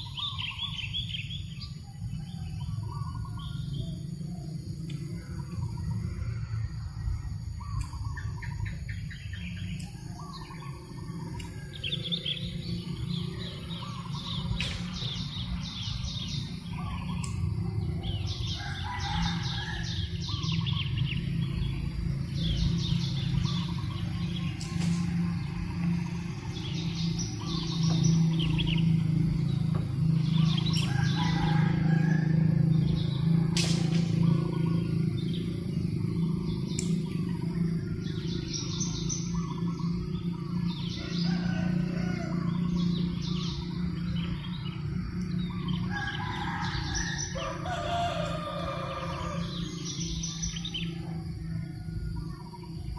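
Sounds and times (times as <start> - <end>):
steady low rumble: 0.0 - 41.2
birds chirping in trills: 0.0 - 52.9.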